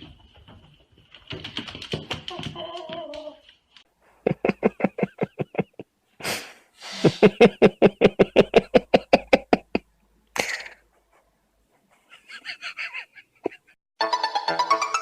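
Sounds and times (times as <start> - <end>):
breathy rush: 4.0 - 9.8.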